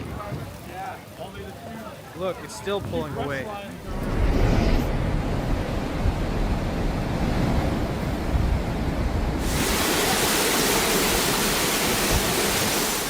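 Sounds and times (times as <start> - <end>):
strong wind buffeting microphone: 2.4 - 13.0
wind and sea hiss: 2.6 - 13.0.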